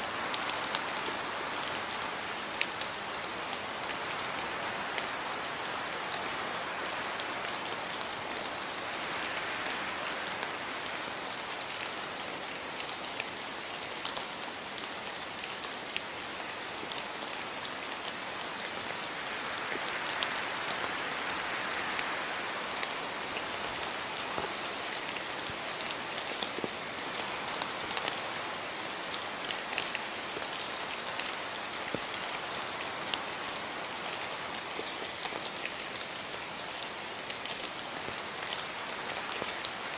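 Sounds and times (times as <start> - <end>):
raindrops ticking on hard surfaces: 0.1 - 39.9
rain hissing: 17.4 - 39.9.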